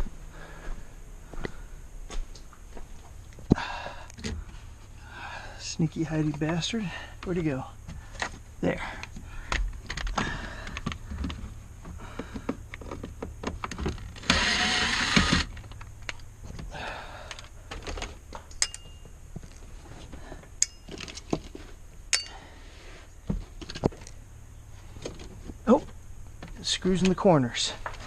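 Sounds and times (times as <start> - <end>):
loud rough noisy burst: 14.2 - 15.5
ringing metallic tinks: 18.5 - 19.2, 20.6 - 21.0, 22.1 - 22.5.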